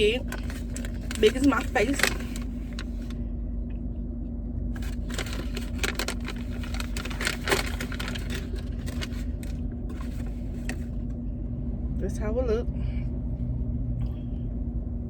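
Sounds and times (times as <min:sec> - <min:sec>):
paper wrapping crinkling: 0:00.0 - 0:03.2, 0:04.8 - 0:11.1
car cabin engine hum: 0:00.0 - 0:15.0.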